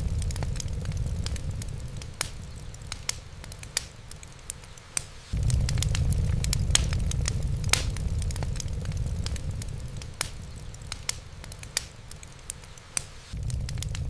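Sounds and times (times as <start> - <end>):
low steady rumble: 0.0 - 3.6, 5.4 - 11.7, 13.4 - 14.0
wood fire crackling: 0.0 - 14.0.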